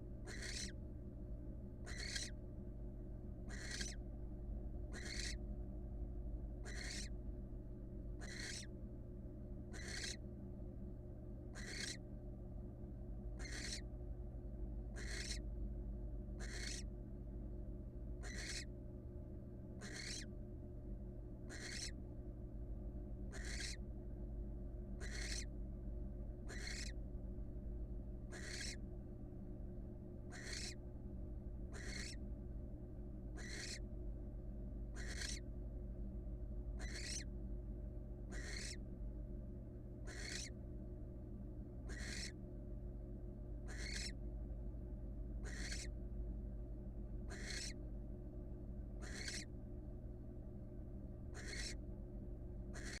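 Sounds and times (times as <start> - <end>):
low electrical hum: 0.0 - 53.0
barn owl hissing calls: 0.2 - 0.8, 1.9 - 2.4, 3.5 - 4.0, 4.9 - 5.4, 6.6 - 7.1, 8.2 - 8.7, 9.7 - 10.2, 11.5 - 12.0, 13.4 - 13.8, 14.9 - 15.4, 16.4 - 16.9, 18.2 - 18.7, 19.8 - 20.3, 21.5 - 22.0, 23.3 - 23.8, 25.0 - 25.5, 26.5 - 27.0, 28.3 - 28.8, 30.3 - 30.8, 31.7 - 32.2, 33.4 - 33.8, 35.0 - 35.4, 36.8 - 37.3, 38.3 - 38.8, 40.1 - 40.5, 41.9 - 42.4, 43.7 - 44.2, 45.4 - 45.9, 47.3 - 47.8, 49.0 - 49.5, 51.3 - 51.8, 52.7 - 53.0.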